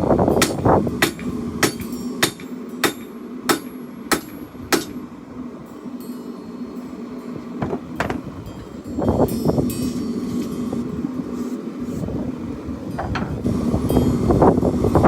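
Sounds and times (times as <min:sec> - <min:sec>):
hammer striking steel on anvil: 0:00.4 - 0:05.0.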